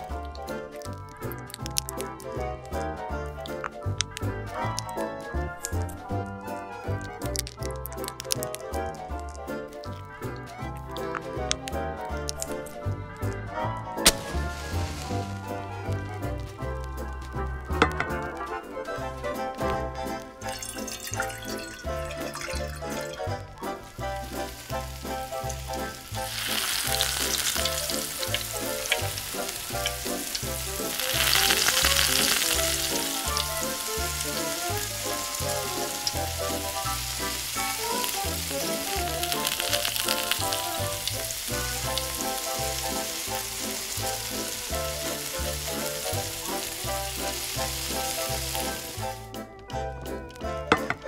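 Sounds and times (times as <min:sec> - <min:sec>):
food frying in hot oil: 0:14.0 - 0:16.1, 0:20.2 - 0:49.2
background music with steady beat: 0:32.0 - 0:51.0.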